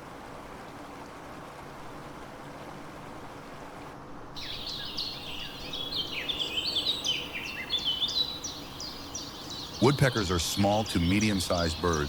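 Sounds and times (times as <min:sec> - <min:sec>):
steady background hiss: 0:00.0 - 0:12.0
songbirds chirping: 0:04.2 - 0:12.0.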